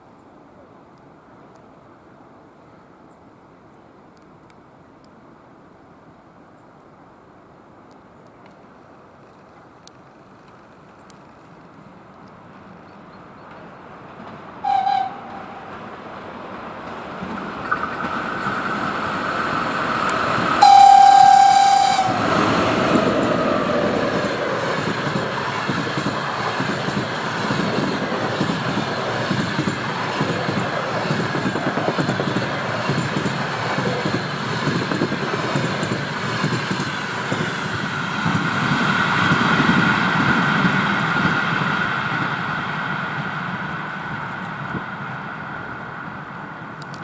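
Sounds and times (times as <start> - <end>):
train coaches rumbling on rails: 12.4 - 47.0
locomotive horn blast: 14.6 - 15.8, 20.5 - 22.9.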